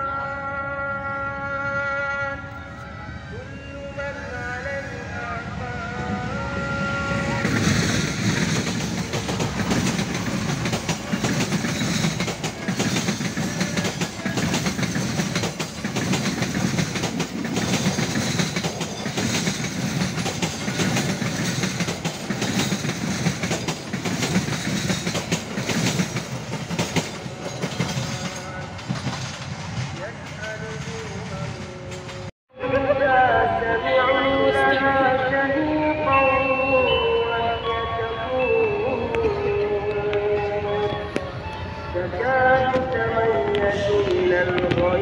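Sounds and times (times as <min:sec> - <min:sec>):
deep train rumble: 0:01.0 - 0:33.8, 0:38.6 - 0:45.0
train wheels clickety-clack: 0:07.3 - 0:32.3, 0:42.7 - 0:45.0.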